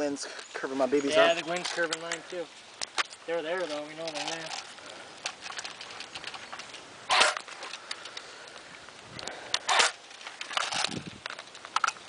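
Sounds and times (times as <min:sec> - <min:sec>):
airsoft rifle bursts: 0:07.1 - 0:07.5.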